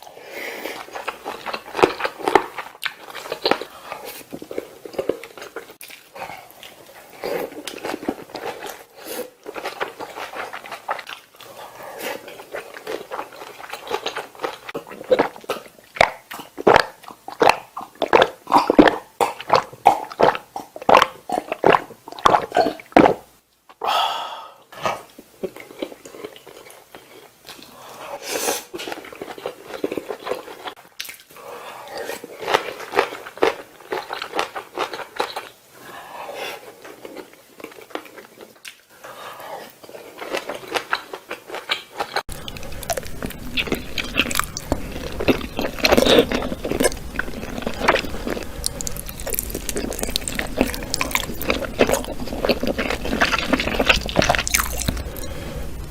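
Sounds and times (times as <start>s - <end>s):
crunchy bites and chewing: 40.2s - 55.9s.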